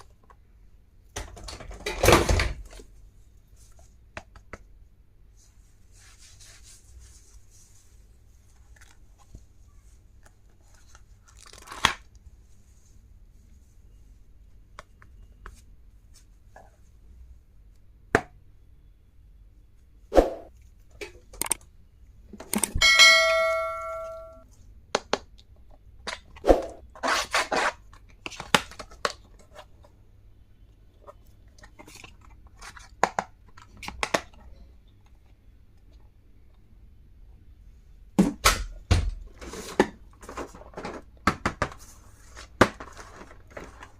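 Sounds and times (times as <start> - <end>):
soft paper rustling: 5.2 - 14.3, 41.8 - 43.9
plastic packaging crinkling: 10.4 - 12.2
metallic ring: 22.8 - 24.4.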